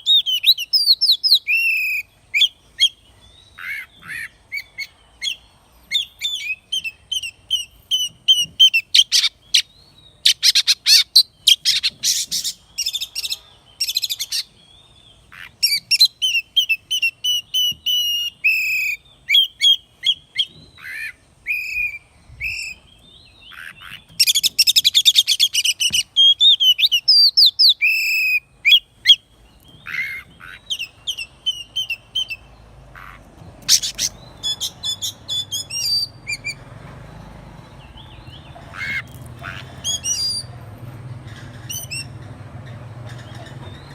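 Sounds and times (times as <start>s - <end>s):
bird singing whistled song: 0.0s - 3.7s, 4.5s - 14.5s, 15.4s - 32.5s, 33.6s - 36.7s, 39.8s - 40.5s, 41.7s - 42.1s.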